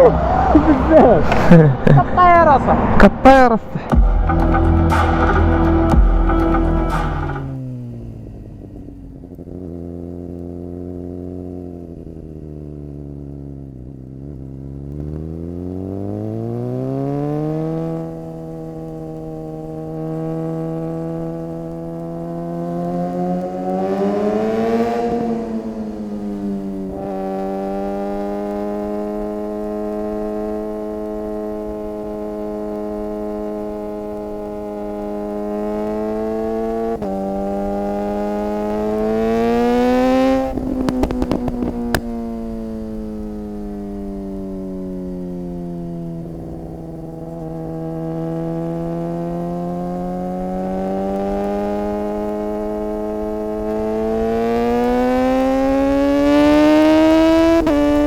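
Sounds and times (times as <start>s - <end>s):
motorcycle engine pulling: 14.2s - 58.0s.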